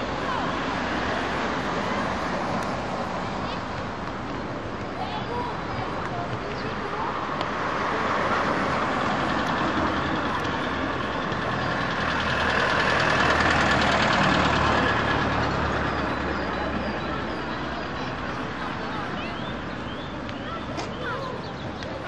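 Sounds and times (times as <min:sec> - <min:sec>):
road noise: 0:00.0 - 0:22.0
vehicle engine running: 0:08.2 - 0:19.1.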